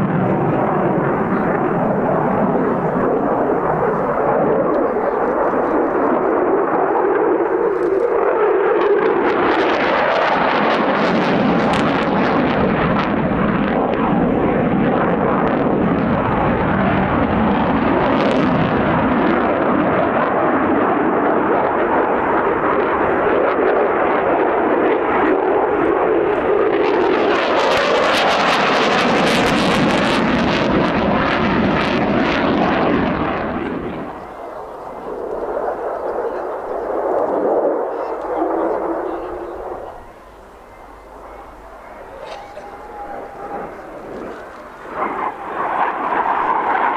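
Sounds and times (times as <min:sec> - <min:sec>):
aircraft roaring overhead: 0:00.0 - 0:46.9.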